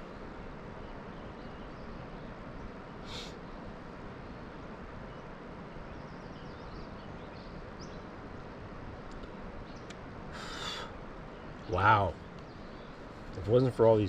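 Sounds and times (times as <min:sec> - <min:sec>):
faint bird chirps: 0:00.0 - 0:08.5, 0:09.3 - 0:14.0
steady hiss: 0:00.0 - 0:14.0
faint clicks: 0:09.0 - 0:10.0.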